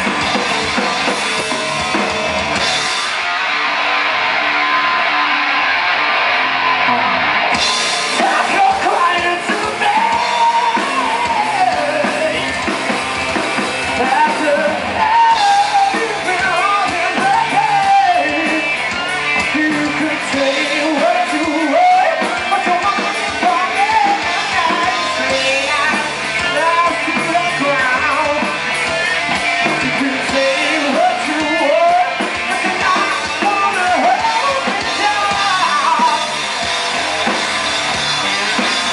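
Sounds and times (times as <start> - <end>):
drums: 0.0 - 38.9
electric guitar: 0.0 - 38.9
person singing: 8.1 - 12.8, 13.8 - 28.6, 29.7 - 36.4.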